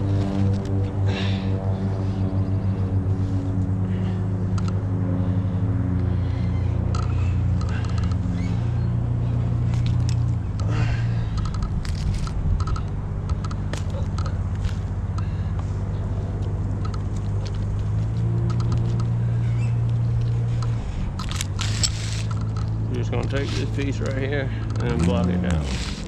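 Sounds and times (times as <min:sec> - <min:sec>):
engine idling: 0:00.0 - 0:26.0
clicks and scrapes of gear: 0:09.6 - 0:10.3, 0:11.3 - 0:15.0, 0:16.4 - 0:26.0.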